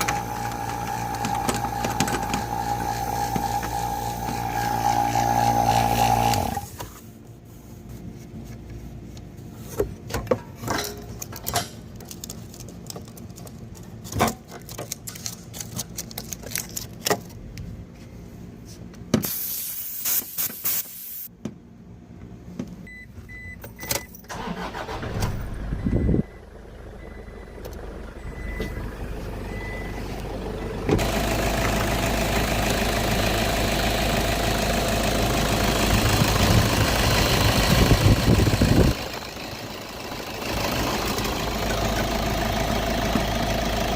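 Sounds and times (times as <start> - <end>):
car engine starting and running: 0.0 - 6.8, 23.3 - 43.9.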